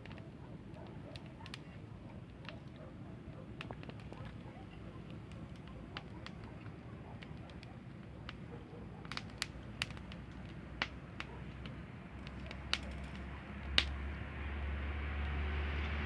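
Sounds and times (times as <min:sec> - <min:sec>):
campfire crackling and popping: 0:00.0 - 0:02.8, 0:03.4 - 0:16.0.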